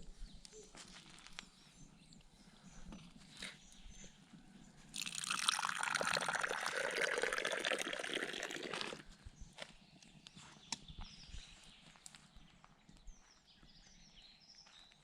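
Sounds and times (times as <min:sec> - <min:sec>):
liquid pouring into container: 0:05.0 - 0:09.0.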